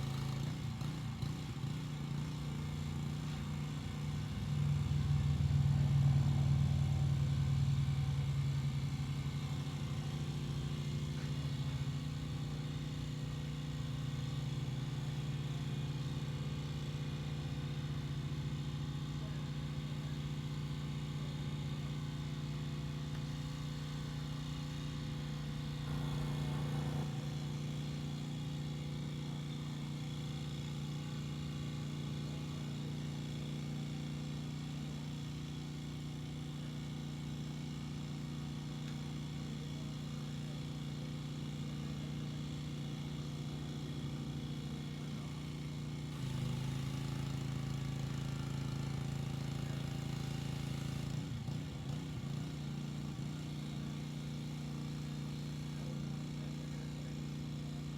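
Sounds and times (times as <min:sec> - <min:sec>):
pressure washer motor hum: 0:19.7 - 0:35.8.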